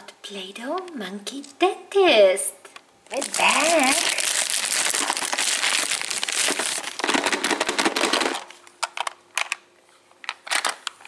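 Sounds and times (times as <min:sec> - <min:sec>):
packaging crinkling: 0:03.1 - 0:09.6, 0:10.2 - 0:11.0.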